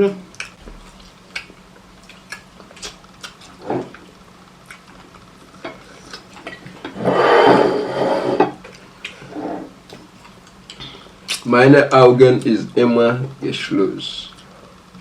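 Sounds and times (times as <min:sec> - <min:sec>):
utensil scraping and stirring: 0:05.7 - 0:08.6.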